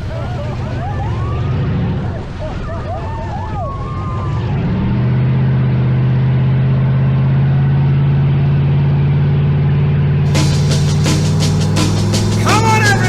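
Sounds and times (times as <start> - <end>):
car engine idling: 10.3 - 13.0.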